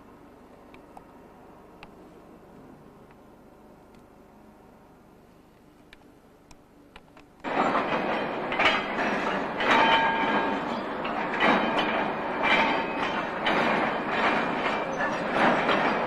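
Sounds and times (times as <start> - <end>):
rail vehicle running on track: 7.4 - 16.0
wheels knocking over rail joints: 7.5 - 16.0.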